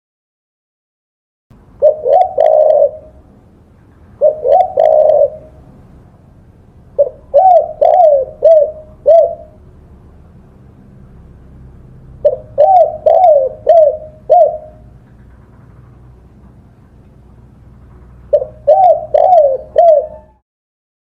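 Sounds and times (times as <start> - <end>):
dove cooing: 1.8 - 3.3, 4.2 - 5.8, 7.0 - 9.6, 12.2 - 15.6, 18.0 - 20.4.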